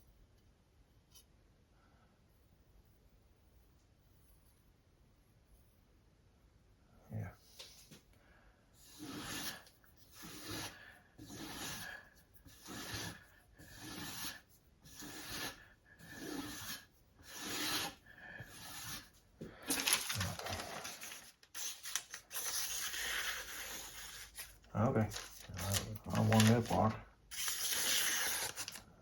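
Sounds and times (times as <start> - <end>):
sharpening stone scraping knife: 8.8 - 11.9, 12.5 - 19.1, 21.5 - 24.6, 27.3 - 28.8.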